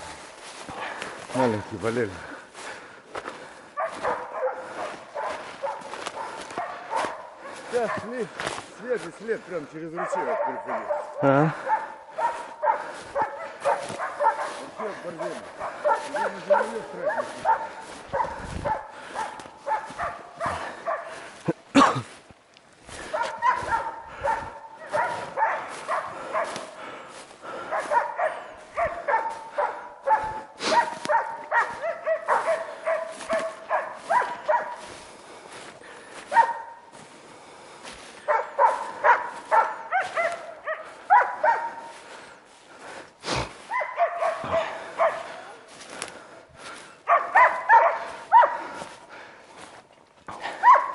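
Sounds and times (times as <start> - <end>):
dogs barking sharply: 3.7 - 8.4, 9.8 - 22.0, 23.0 - 26.8, 27.5 - 35.2, 36.2 - 36.9, 38.2 - 42.0, 43.3 - 45.5, 47.0 - 49.1, 50.3 - 50.9.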